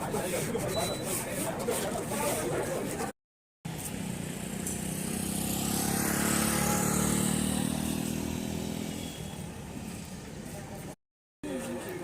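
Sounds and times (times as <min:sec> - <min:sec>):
passing vehicle engine hum: 0:03.7 - 0:10.3.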